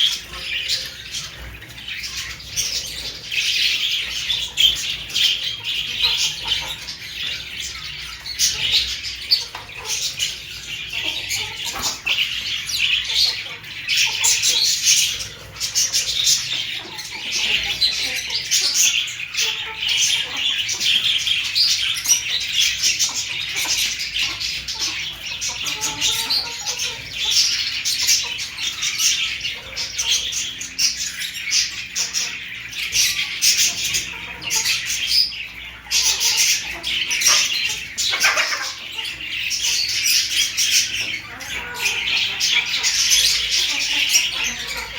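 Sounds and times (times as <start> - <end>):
birds chirping and squawking: 0.0 - 44.9.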